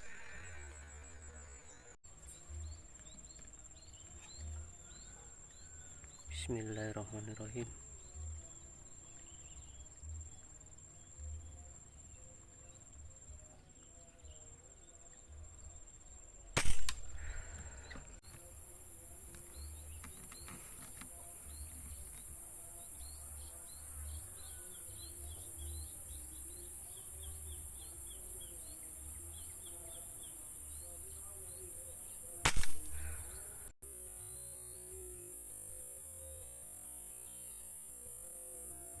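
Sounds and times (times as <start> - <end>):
small birds chirping: 0.0 - 39.0
air rifle shots: 16.6 - 17.5, 32.4 - 33.3
steady high hiss: 16.6 - 39.0.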